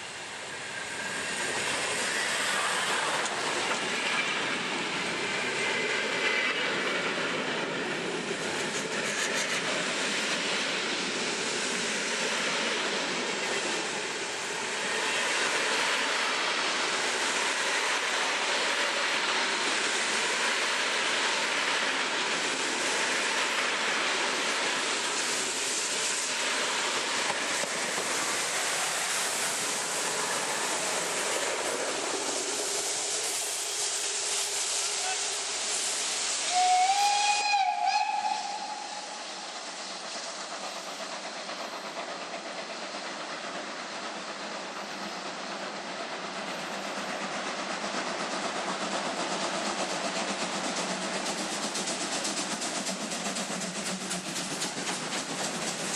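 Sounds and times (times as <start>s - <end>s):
steam hissing: 0.0s - 55.9s
train noise: 0.0s - 55.9s
steam whistle: 36.4s - 39.2s.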